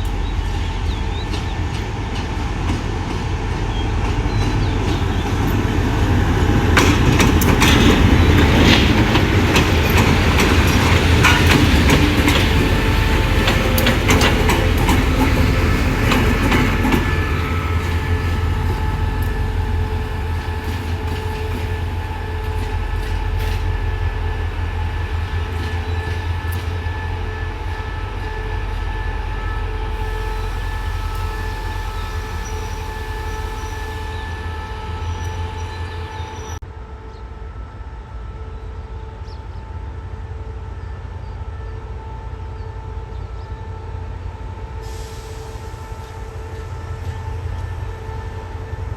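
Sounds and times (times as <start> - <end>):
train wheels clicking over rail joints: 0.0 - 28.4.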